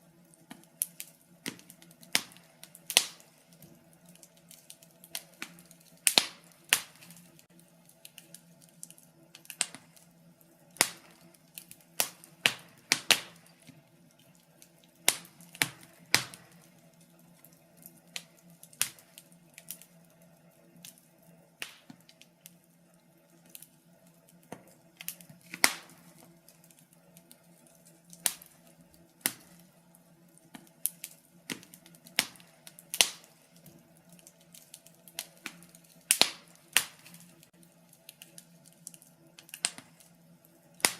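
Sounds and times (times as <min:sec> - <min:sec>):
faint steady hum: 0:00.0 - 0:40.9
wood fire crackling: 0:00.0 - 0:40.9.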